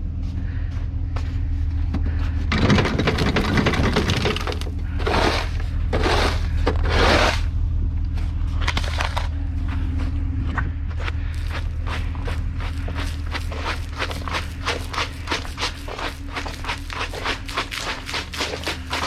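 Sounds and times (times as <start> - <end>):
engine idling: 0.0 - 19.0
snow crunching and scraping: 3.2 - 7.5, 8.3 - 10.4, 11.0 - 19.0.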